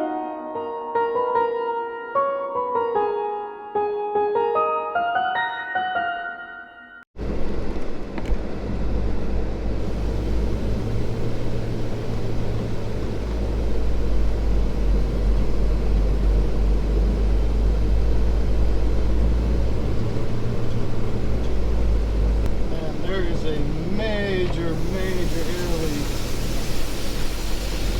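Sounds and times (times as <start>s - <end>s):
truck diesel engine drone: 7.2s - 27.9s.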